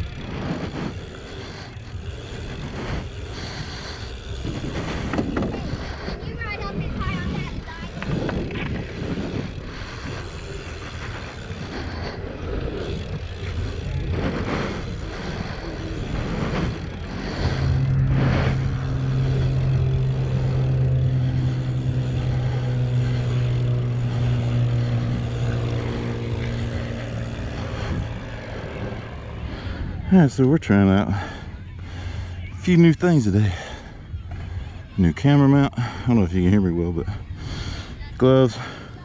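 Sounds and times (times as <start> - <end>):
wind noise on camera: 0.0 - 30.0
low engine hum: 0.0 - 39.0.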